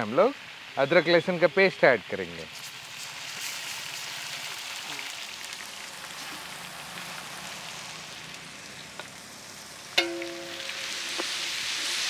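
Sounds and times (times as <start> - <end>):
paste sizzling in hot oil: 0.8 - 12.0
sharp metallic clank: 10.0 - 11.6.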